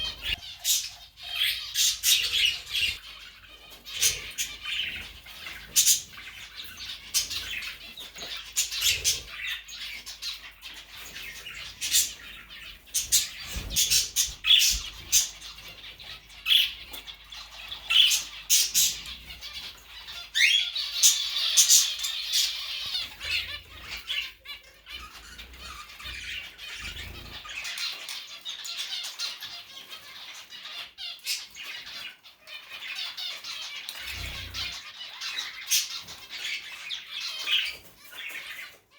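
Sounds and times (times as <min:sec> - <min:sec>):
pet bird squawking and chirping: 0:00.0 - 0:38.8.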